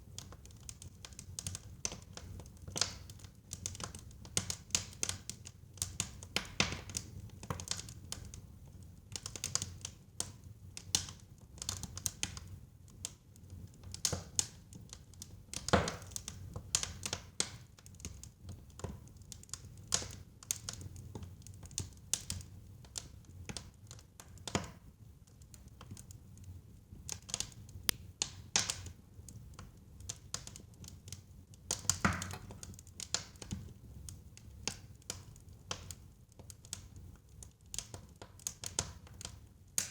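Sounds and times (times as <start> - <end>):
firewood crackling and popping: 0.0 - 39.9.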